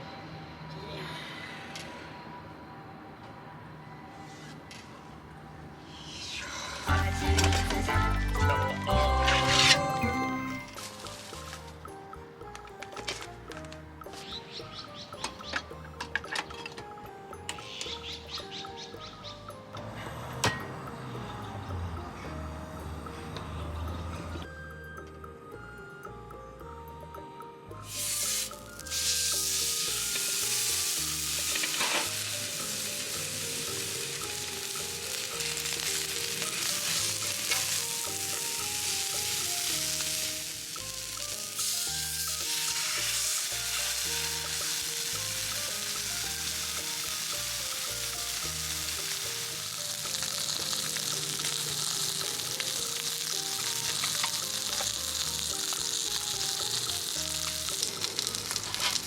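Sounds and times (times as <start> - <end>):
food sizzling in a pan: 9.0 - 11.8, 27.8 - 59.0.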